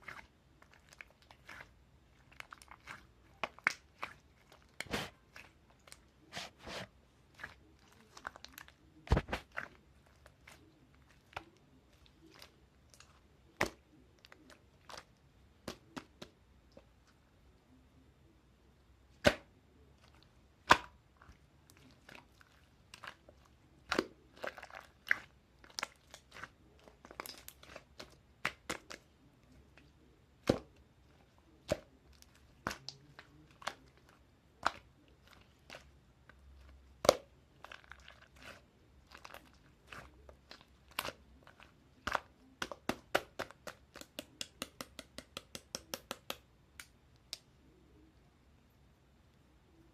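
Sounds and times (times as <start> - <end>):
slime popping and crackling: 19.2 - 29.0, 31.6 - 47.4.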